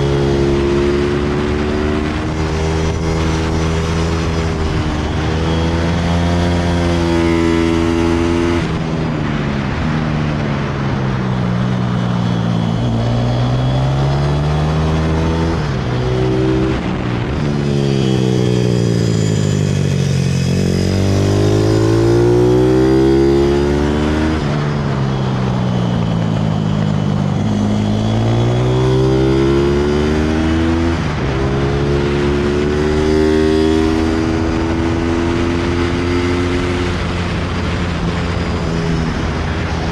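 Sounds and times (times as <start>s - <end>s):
motorbike engine revving: 0.0s - 9.8s, 11.6s - 39.9s.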